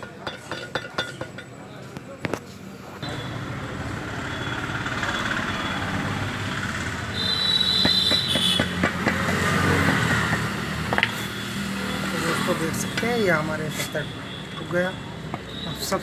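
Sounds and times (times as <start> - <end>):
knocks and taps of hard parts: 7.7 - 11.2, 15.3 - 15.6.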